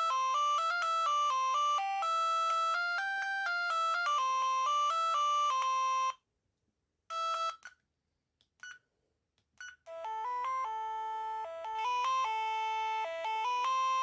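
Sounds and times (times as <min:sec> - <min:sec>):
phone ringtone tune: 0:00.0 - 0:06.2, 0:09.9 - 0:14.0.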